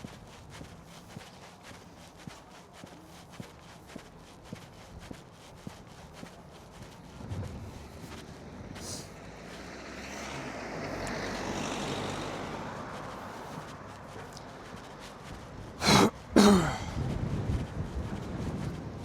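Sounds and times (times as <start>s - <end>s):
person coughing: 15.8s - 17.0s.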